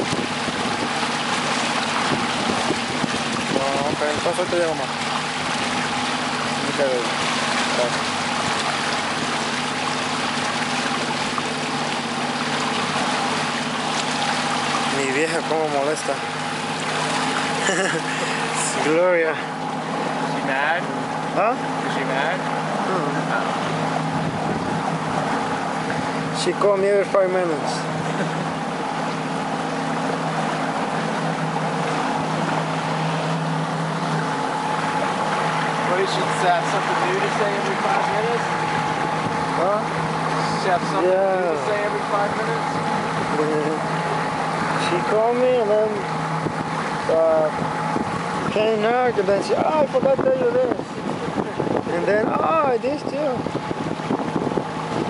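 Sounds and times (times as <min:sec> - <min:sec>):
wind noise: 0:00.0 - 0:01.1, 0:02.0 - 0:04.3, 0:24.1 - 0:25.3, 0:47.7 - 0:48.6, 0:49.5 - 0:55.0
outboard motor humming: 0:00.0 - 0:55.0
water rushing: 0:00.0 - 0:55.0.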